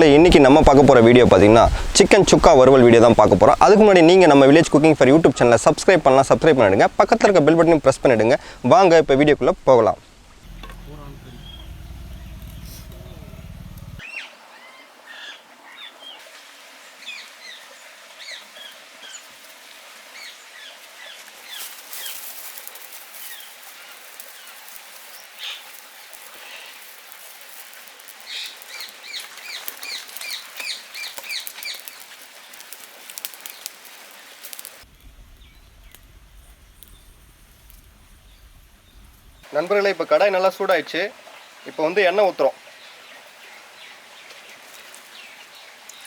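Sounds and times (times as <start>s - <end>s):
crackly bursts: 10.4s - 14.0s, 27.2s - 39.5s
small birds chirping: 10.4s - 14.3s, 28.2s - 39.5s.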